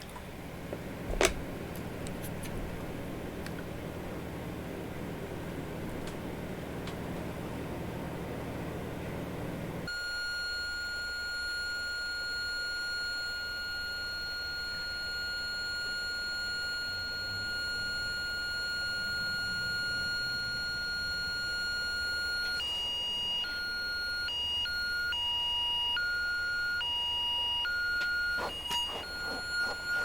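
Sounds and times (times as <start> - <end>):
electronic alarm tone: 9.9 - 30.0.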